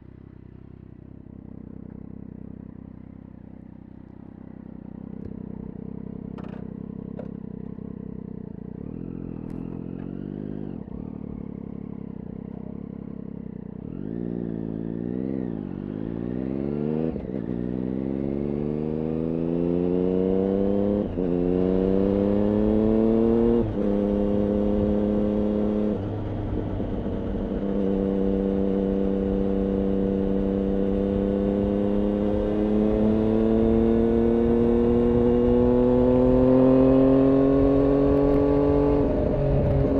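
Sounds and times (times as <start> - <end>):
motorcycle engine revving: 0.6 - 39.9.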